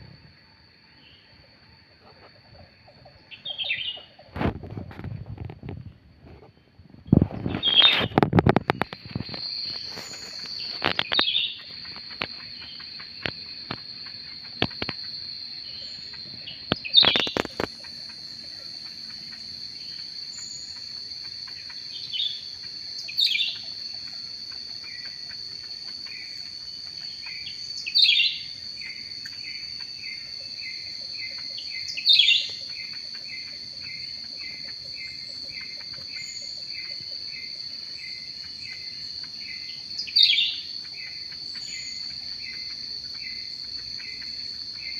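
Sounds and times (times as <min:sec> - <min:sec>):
short bird chirps: 0:07.1 - 0:08.2
high-pitched insect drone: 0:07.1 - 0:44.9
sharp falling bird calls: 0:07.2 - 0:13.4.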